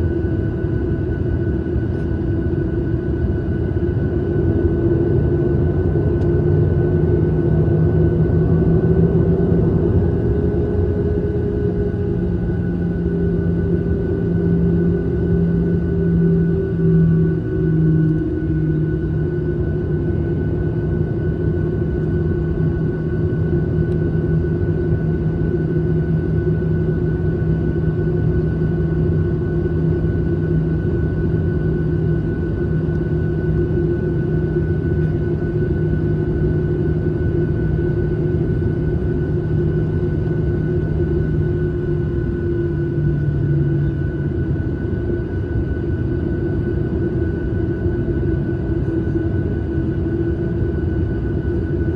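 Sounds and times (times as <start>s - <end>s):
constant low hum: 0.0s - 51.9s
jet engine drone: 0.0s - 51.9s
faint high whine: 40.0s - 46.6s.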